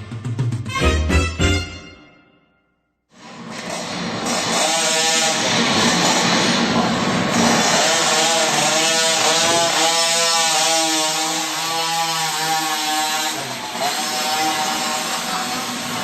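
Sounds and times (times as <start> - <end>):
minibike engine revving: 3.2 - 16.0.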